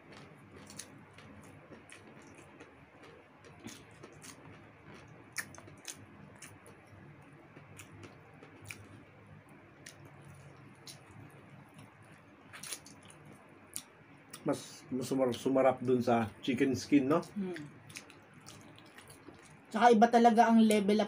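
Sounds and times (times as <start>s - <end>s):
people chewing close up: 0.0s - 9.2s, 9.8s - 19.8s
wet clicks and lip smacks: 0.1s - 6.9s, 7.5s - 9.0s, 9.8s - 14.5s, 17.8s - 19.6s.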